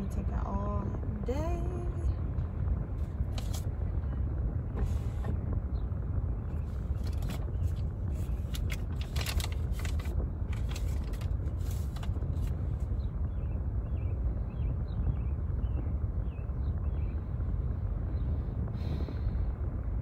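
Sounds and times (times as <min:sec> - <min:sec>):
car idling: 0:00.0 - 0:14.7.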